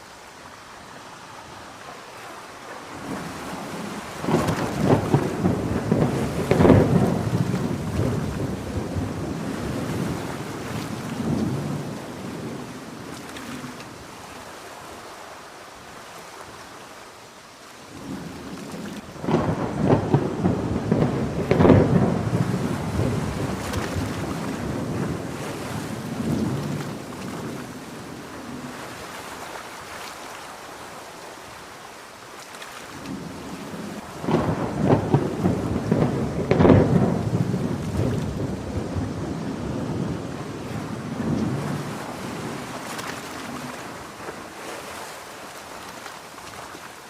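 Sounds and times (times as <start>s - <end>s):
heavy rain: 0.0s - 47.0s
thunder rolling: 3.0s - 13.8s, 19.2s - 28.3s, 33.0s - 44.2s.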